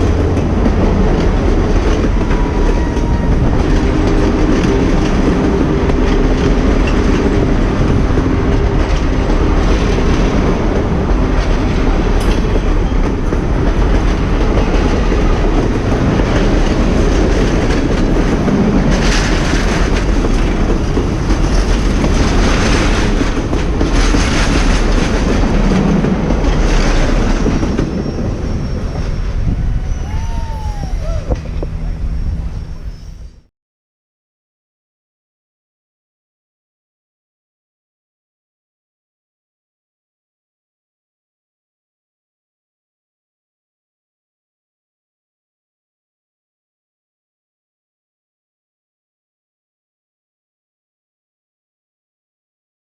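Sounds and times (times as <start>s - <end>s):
wheels clicking over rail joints: 0.0s - 33.4s
steam train rolling past: 0.0s - 33.5s
squealing tone: 28.0s - 33.5s.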